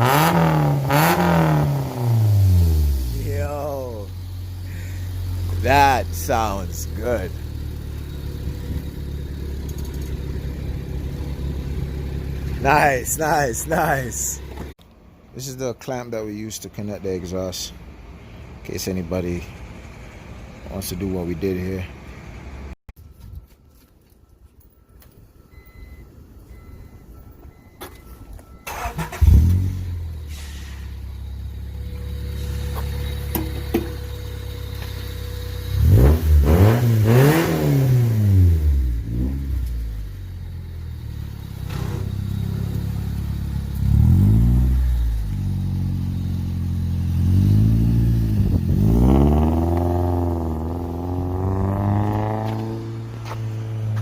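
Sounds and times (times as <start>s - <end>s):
car engine starting and revving: 0.0s - 14.8s, 28.6s - 54.0s.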